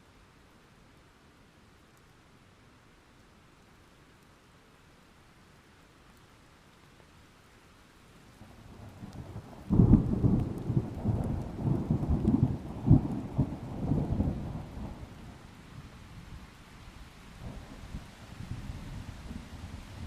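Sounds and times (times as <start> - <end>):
light rain hissing: 0.0 - 20.0
thunder rumbling and clapping: 8.9 - 15.2.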